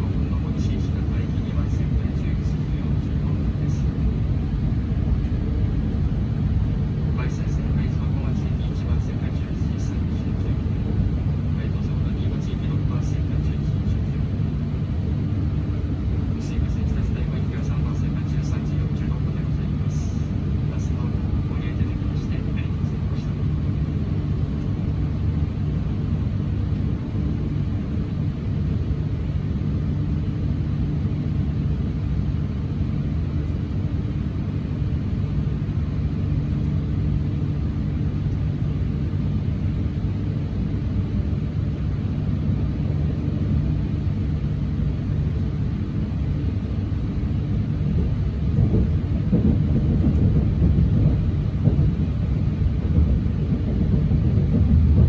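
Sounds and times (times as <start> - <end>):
train rumble and hum: 0.0 - 55.0.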